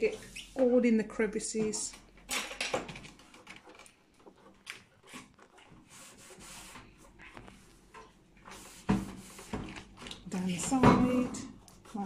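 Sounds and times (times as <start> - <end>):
damp cloth wiping: 4.4 - 9.8.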